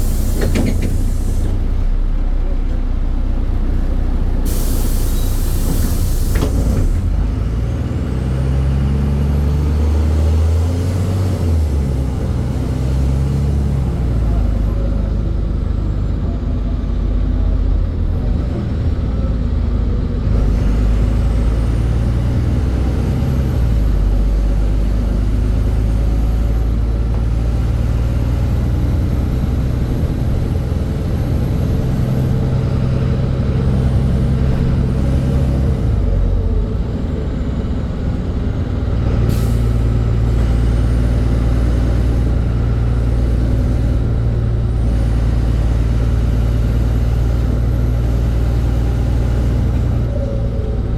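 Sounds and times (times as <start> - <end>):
bus engine drone: 0.0 - 50.9
compressed air hiss: 4.5 - 6.4.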